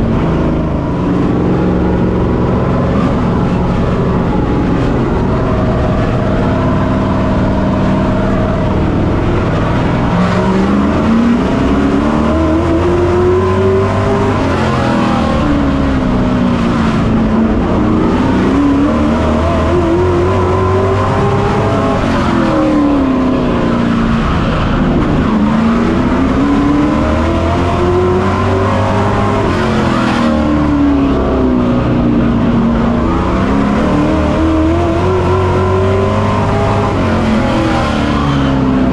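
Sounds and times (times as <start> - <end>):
truck engine revving: 0.0 - 38.9.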